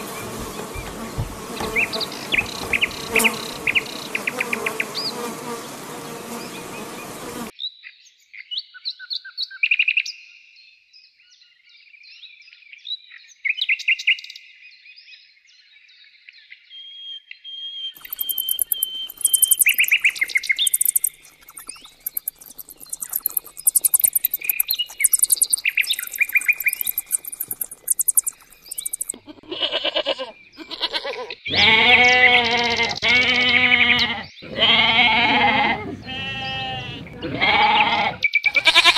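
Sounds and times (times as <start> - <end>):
rapid very high chirping: 0.0 - 5.3, 18.0 - 29.2
honeybees buzzing: 0.0 - 7.5, 18.0 - 29.2
birds chirping and twittering: 0.0 - 9.6, 15.1 - 29.3, 30.0 - 38.9
goat bleating: 29.1 - 38.9.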